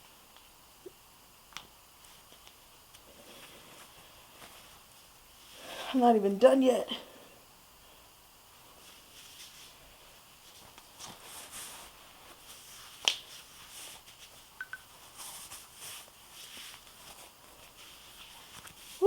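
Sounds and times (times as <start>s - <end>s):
fabric rustling: 2.0s - 5.9s, 8.6s - 19.0s.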